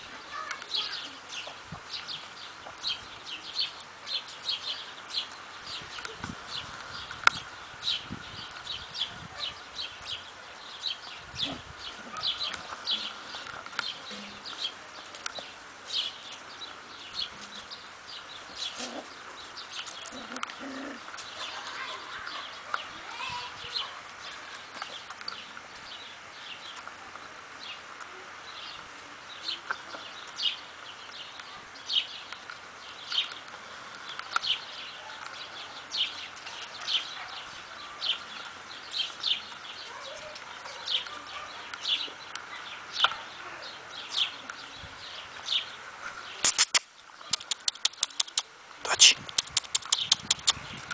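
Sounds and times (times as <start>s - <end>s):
bird chirping: 34.0s - 50.8s
loud sharp clicks: 46.4s - 50.6s.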